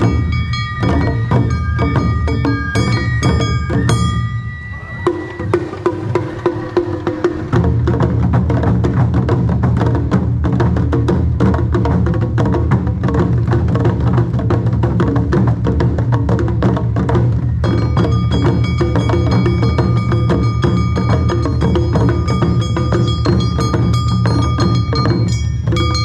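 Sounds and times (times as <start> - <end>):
high held tones: 0.0 - 7.2, 17.5 - 26.0
taiko drum rhythm: 0.0 - 26.0.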